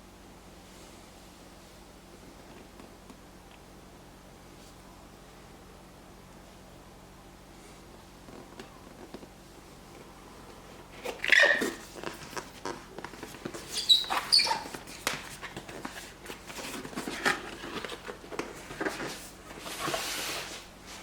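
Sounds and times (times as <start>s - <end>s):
packaging being handled: 10.8s - 20.7s
sliding rustle: 10.9s - 21.0s
short squeaks: 11.1s - 11.8s, 13.6s - 14.9s.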